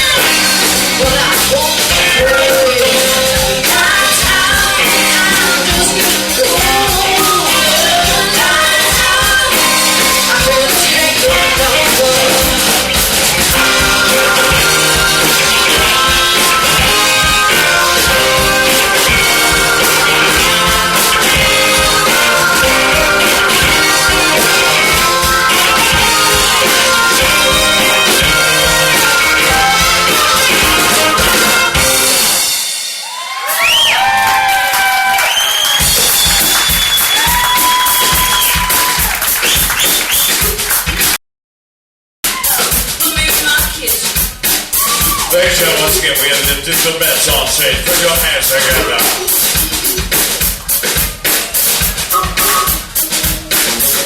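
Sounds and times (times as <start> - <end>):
person singing: 0.0 - 32.0
drums: 0.0 - 41.2, 42.2 - 54.0
live band playing: 0.0 - 41.2, 42.2 - 54.0.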